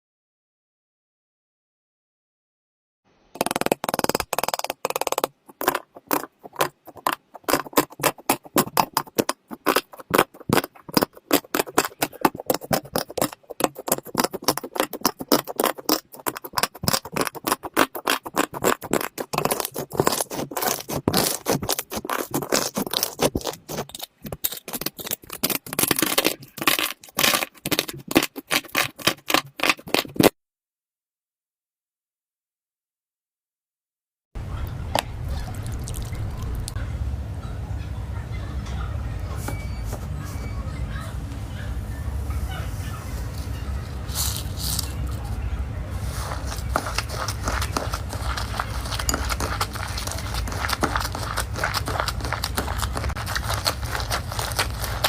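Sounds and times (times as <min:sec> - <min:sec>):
slime crackling and popping: 0:03.4 - 0:30.3, 0:35.0 - 0:36.8, 0:46.2 - 0:55.0.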